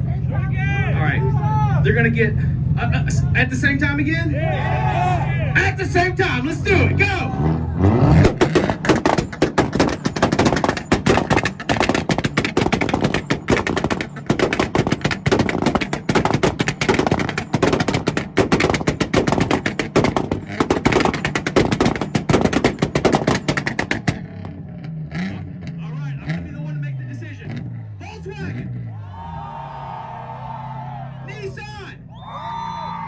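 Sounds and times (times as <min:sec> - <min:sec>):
car engines droning at limiter: 0:00.0 - 0:33.0
exhaust pops and bangs: 0:05.6 - 0:28.7.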